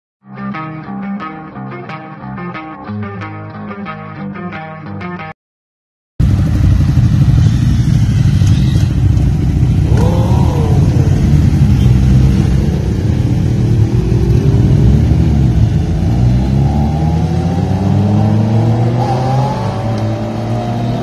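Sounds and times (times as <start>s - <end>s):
motorcycle accelerating: 6.2s - 21.0s
motorcycles rumbling: 6.2s - 21.0s.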